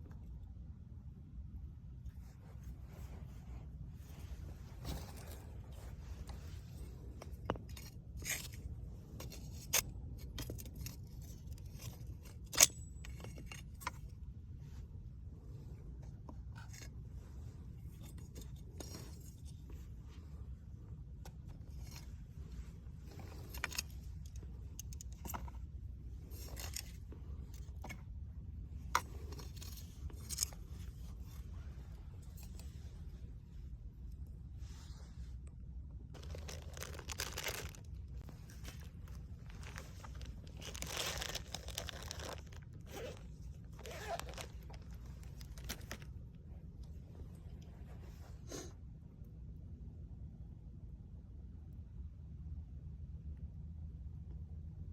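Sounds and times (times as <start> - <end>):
steady low rumble: 0.0 - 54.9
firewood and gear scraping and clinking: 4.0 - 14.8, 15.4 - 33.6, 36.1 - 46.2.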